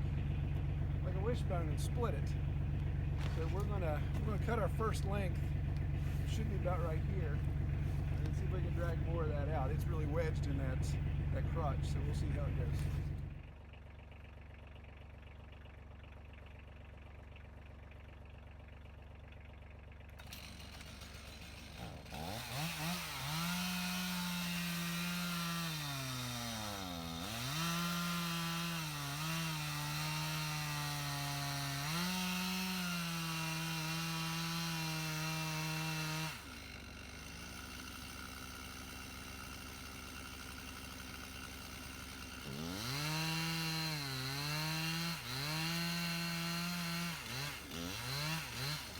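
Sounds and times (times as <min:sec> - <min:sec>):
chainsaw cutting log: 0:00.0 - 0:13.3, 0:20.1 - 0:48.9
low engine hum: 0:00.0 - 0:20.8.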